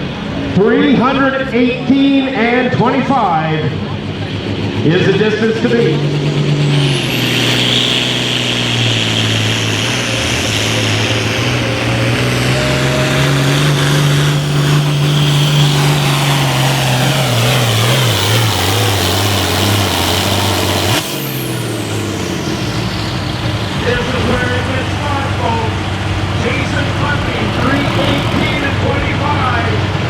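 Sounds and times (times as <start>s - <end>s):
tractor engine at full throttle: 0.0s - 30.0s
high turbo whistle: 6.4s - 25.2s.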